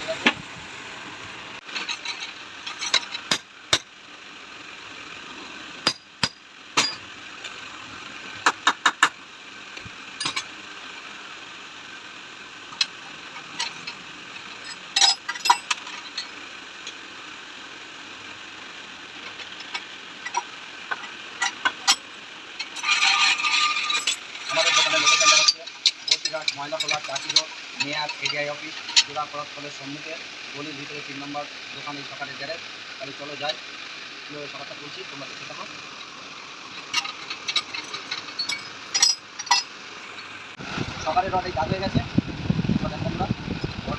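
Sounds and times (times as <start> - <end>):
metal clinks of hand tools: 36.8 - 39.7.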